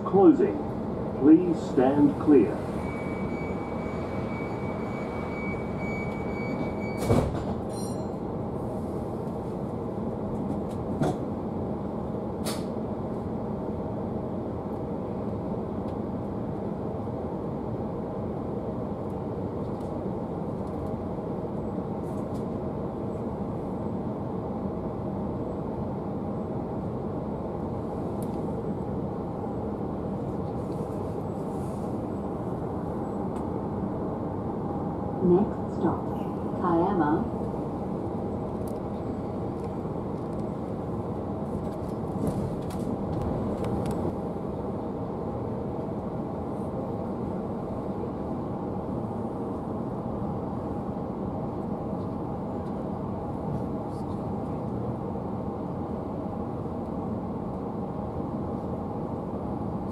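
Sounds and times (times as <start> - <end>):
train running rumble: 0.0 - 59.9
train doors thudding shut: 6.1 - 8.0, 10.5 - 11.3, 12.4 - 12.8.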